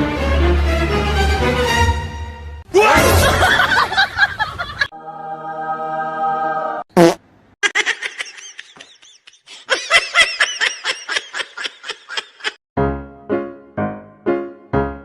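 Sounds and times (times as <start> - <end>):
high-pitched laughing: 7.6 - 12.6
piano tune: 12.8 - 15.0.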